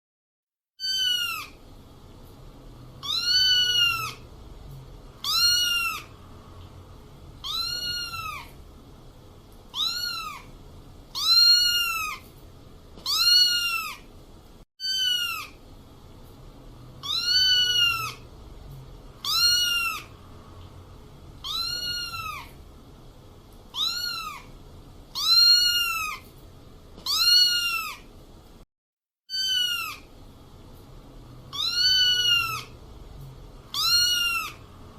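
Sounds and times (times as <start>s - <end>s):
kitten meowing: 0.8s - 1.6s, 3.0s - 4.2s, 5.2s - 6.2s, 7.4s - 8.6s, 9.7s - 10.5s, 11.1s - 12.3s, 13.0s - 14.1s, 14.8s - 15.6s, 17.0s - 18.2s, 19.2s - 20.2s, 21.4s - 22.6s, 23.7s - 24.5s, 25.1s - 26.2s, 27.0s - 28.1s, 29.3s - 30.1s, 31.5s - 32.8s, 33.7s - 34.7s.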